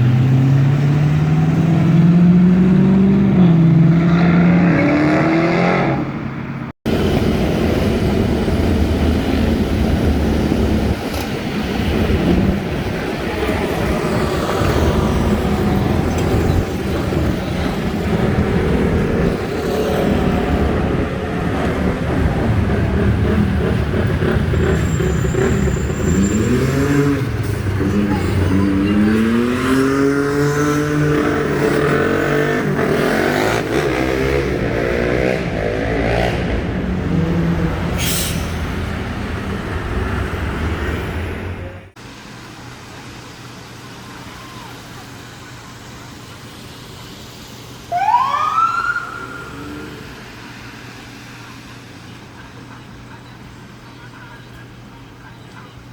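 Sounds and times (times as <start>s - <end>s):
vehicle revving and accelerating: 0.0s - 42.0s
street traffic engine noise: 0.0s - 55.9s.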